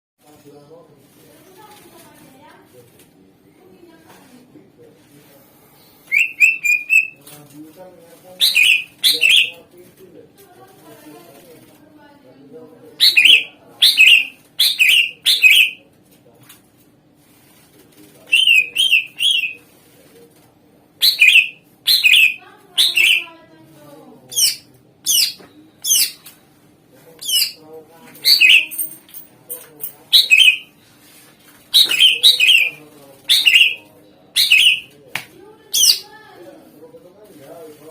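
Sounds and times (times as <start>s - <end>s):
bird whistled calls: 6.1s - 7.2s, 8.4s - 9.5s, 13.0s - 15.8s, 18.3s - 19.6s, 21.0s - 23.3s, 28.2s - 28.8s, 30.2s - 30.7s, 31.8s - 33.8s, 34.4s - 34.9s.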